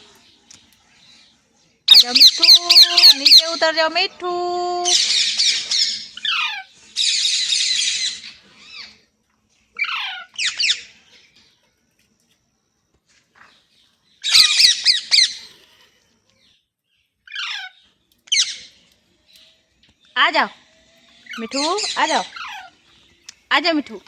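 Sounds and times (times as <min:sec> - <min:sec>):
parrot squawking: 0:01.9 - 0:04.0, 0:04.8 - 0:08.9, 0:09.8 - 0:11.0, 0:14.2 - 0:15.5, 0:17.3 - 0:18.7, 0:20.2 - 0:22.8.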